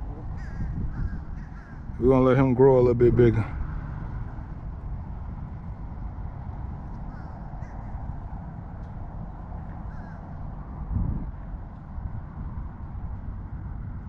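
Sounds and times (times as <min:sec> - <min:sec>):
birds calling: 0:00.0 - 0:02.2, 0:07.0 - 0:08.3, 0:09.6 - 0:10.4.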